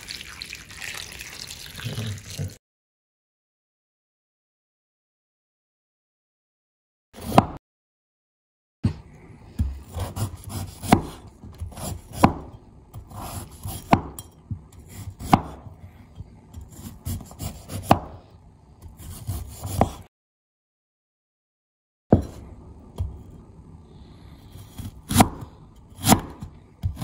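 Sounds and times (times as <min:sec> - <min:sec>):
knife scraping ginger skin: 0:16.6 - 0:18.0, 0:18.8 - 0:20.0.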